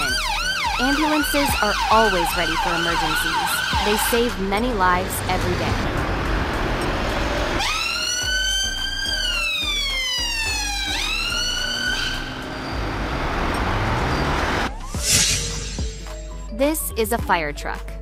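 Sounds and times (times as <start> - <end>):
ambulance siren wailing: 0.0 - 6.6, 7.2 - 14.8
rushing road noise: 2.7 - 8.4, 10.7 - 16.2.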